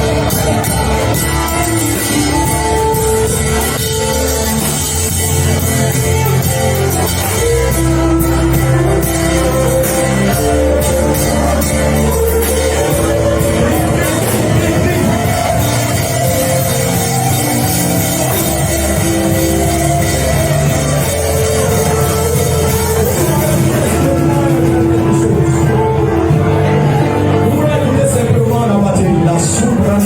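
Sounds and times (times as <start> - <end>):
heavy bass: 0.0 - 30.0
live band music: 0.0 - 30.0
sustained keyboard or guitar notes: 0.0 - 30.0.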